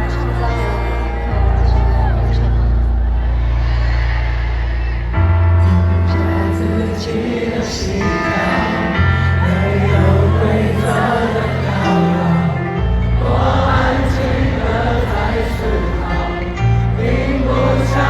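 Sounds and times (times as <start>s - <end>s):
choir-like singing: 0.0s - 18.0s
live pop concert music: 0.0s - 18.0s
deep bass notes: 11.5s - 18.0s.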